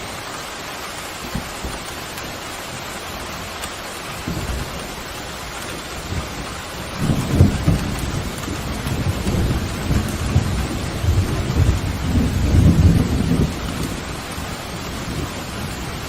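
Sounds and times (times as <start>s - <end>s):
heavy rain hissing: 0.0s - 16.0s
thunder rumbling: 4.1s - 16.0s.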